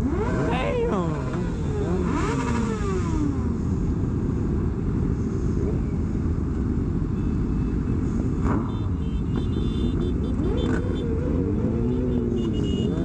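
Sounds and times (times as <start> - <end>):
motorcycle engine: 0.0 - 4.9, 8.4 - 13.0
wind and road rush: 0.0 - 13.0.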